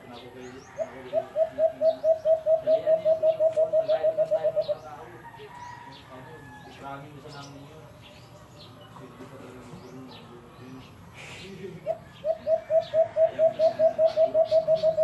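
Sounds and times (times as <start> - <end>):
bird cooing: 0.0 - 5.3, 11.8 - 15.0.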